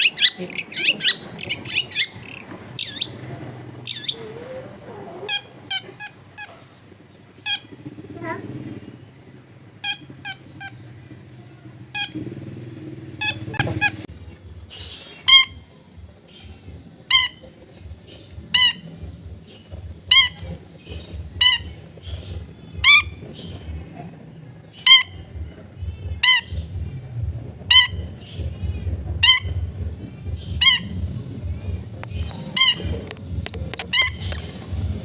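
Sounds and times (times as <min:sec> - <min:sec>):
high twittering: 0:00.0 - 0:35.0
low rumble: 0:15.6 - 0:35.0.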